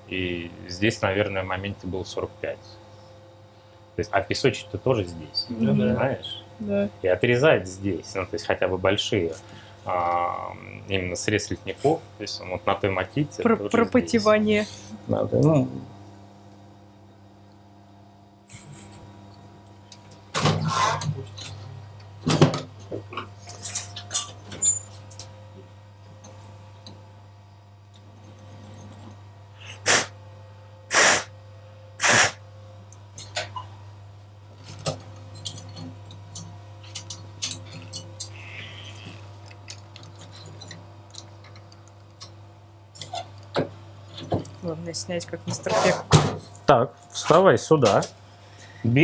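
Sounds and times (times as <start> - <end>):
workshop machinery humming: 0.0 - 49.0
loud short hisses: 29.6 - 30.2, 30.9 - 31.3, 32.0 - 32.4.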